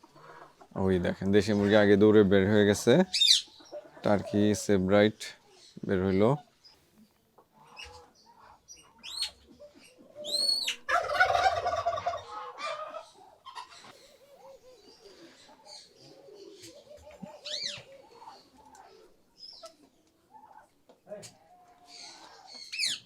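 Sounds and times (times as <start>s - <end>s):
poultry chirps and calls: 0.0s - 23.0s
turkey gobbling: 3.1s - 4.4s, 7.6s - 23.0s.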